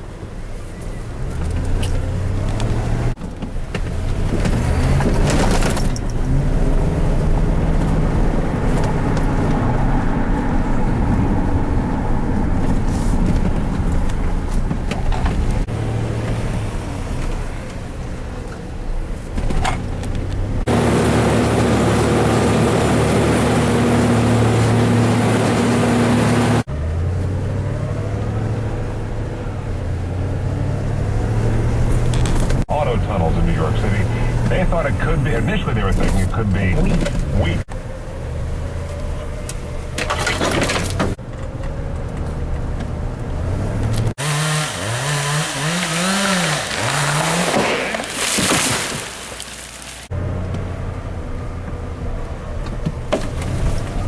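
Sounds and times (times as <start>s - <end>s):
heavy engines running: 20.4s - 27.2s, 32.2s - 42.0s.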